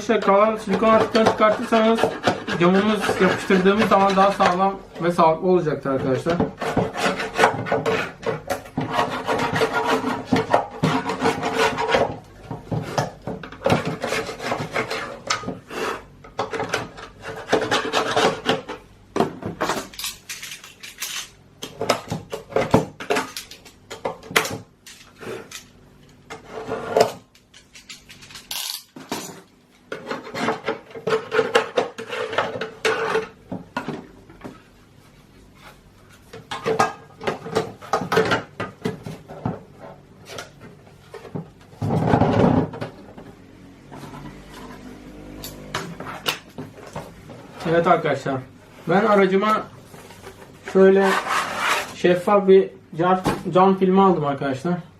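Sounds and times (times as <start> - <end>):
hand tool scraping sealant: 0.0 - 4.8, 6.2 - 16.1, 17.0 - 18.6, 50.7 - 52.0.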